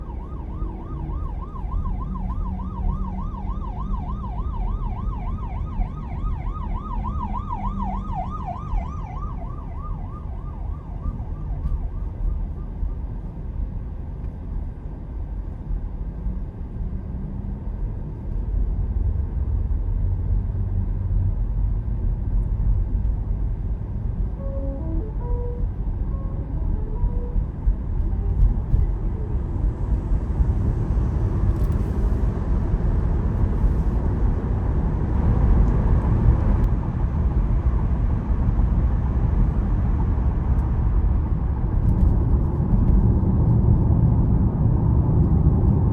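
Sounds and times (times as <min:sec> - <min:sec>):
siren wailing: 0:00.0 - 0:13.0
car road noise: 0:00.0 - 0:45.9.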